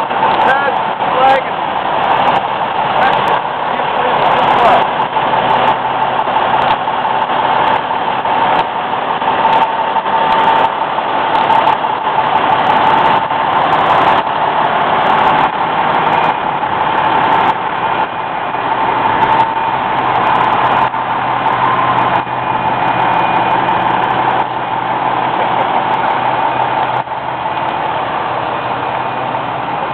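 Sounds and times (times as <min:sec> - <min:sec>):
fire engine idling: 0:00.0 - 0:29.9.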